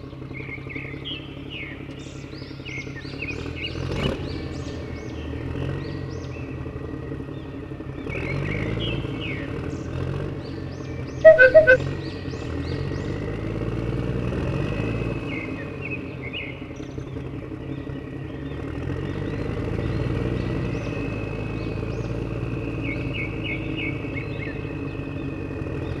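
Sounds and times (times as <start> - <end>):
birds chirping and whistling: 11.3 - 11.8.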